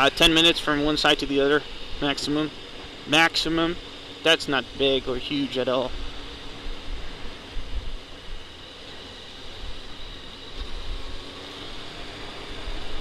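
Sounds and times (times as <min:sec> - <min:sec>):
motorcycle engine droning: 0:00.0 - 0:13.0
wind rushing over microphone: 0:05.9 - 0:08.6.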